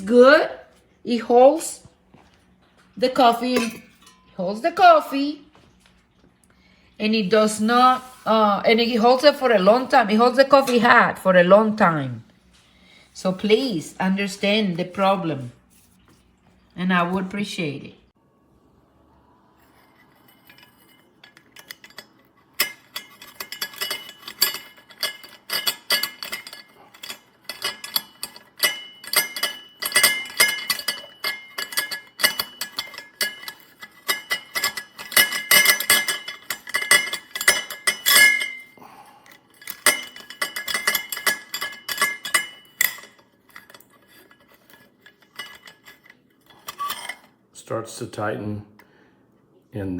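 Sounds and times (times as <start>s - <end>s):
metal parts clinking and scraping: 19.8s - 47.3s.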